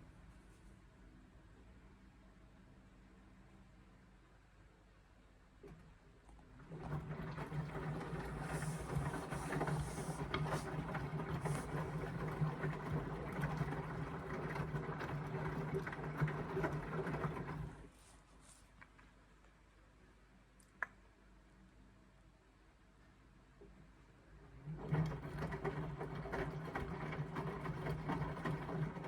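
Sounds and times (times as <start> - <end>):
washing machine motor humming: 5.6 - 17.9, 24.3 - 29.0
water sloshing in drum: 6.6 - 17.9, 24.8 - 29.0.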